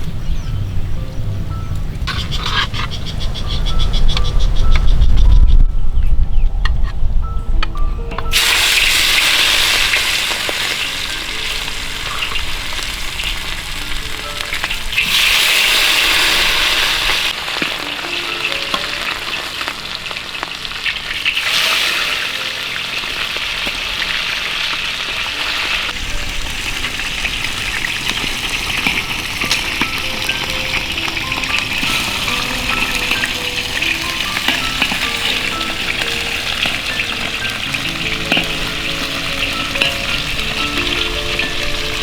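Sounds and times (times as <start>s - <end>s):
food sizzling in hot oil: 8.3s - 42.0s.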